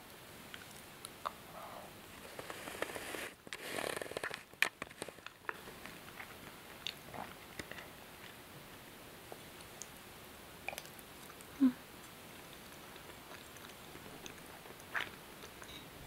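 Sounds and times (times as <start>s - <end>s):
person chewing: 10.6s - 15.8s.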